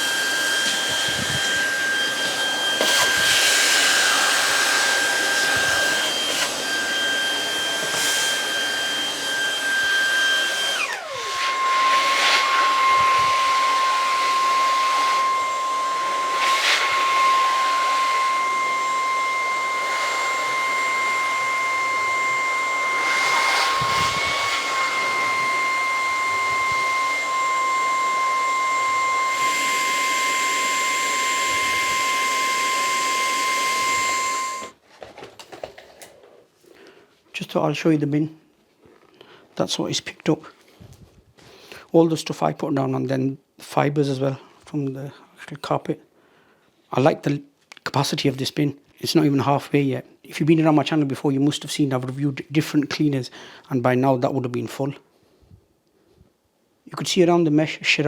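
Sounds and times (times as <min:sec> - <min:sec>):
vacuum cleaner motor whining: 0:00.0 - 0:34.8.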